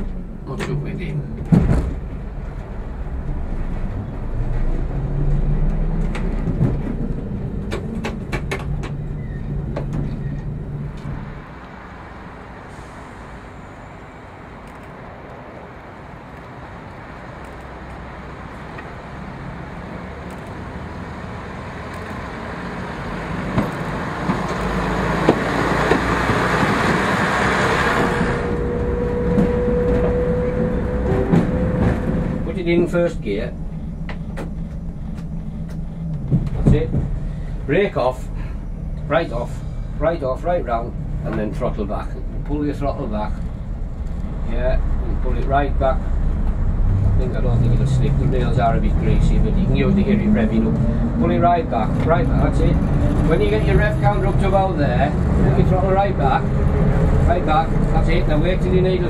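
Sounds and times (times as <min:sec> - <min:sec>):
train diesel engine running: 0:00.0 - 0:59.0
sharp clicks: 0:14.6 - 0:15.4, 0:16.3 - 0:18.9, 0:19.7 - 0:20.6, 0:21.8 - 0:22.3.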